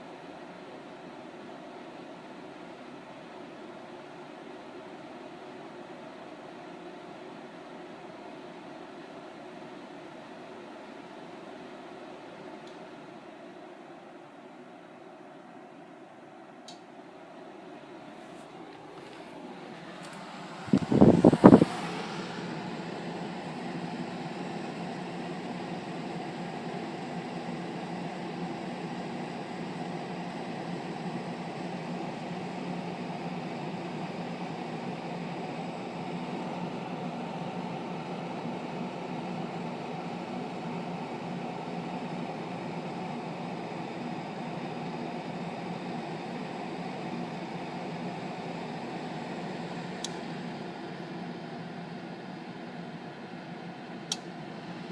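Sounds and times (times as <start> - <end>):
air conditioner humming: 0.0 - 54.9
faint click: 12.6 - 12.8, 16.6 - 16.9, 54.1 - 54.3.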